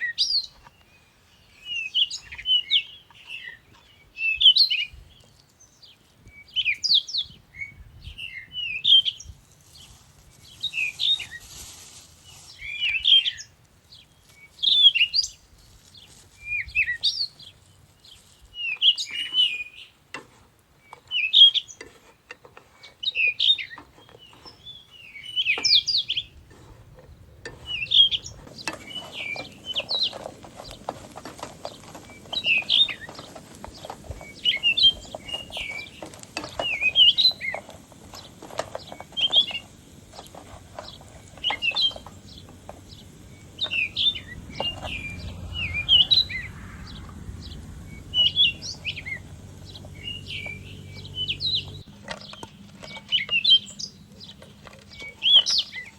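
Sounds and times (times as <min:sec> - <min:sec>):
crackling patter: 0:09.5 - 0:12.7, 0:26.5 - 0:53.1
songbird chirping: 0:27.0 - 0:55.9.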